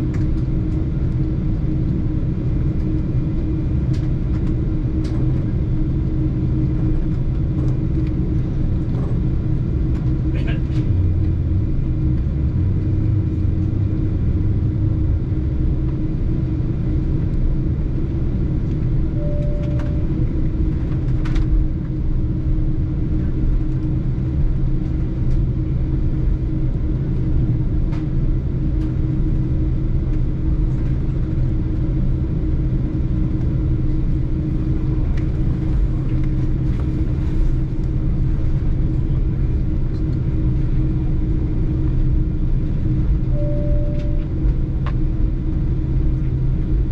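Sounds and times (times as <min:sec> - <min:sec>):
airliner departing: 0:00.0 - 0:46.9
short faint beep: 0:19.2 - 0:20.1, 0:43.4 - 0:44.3.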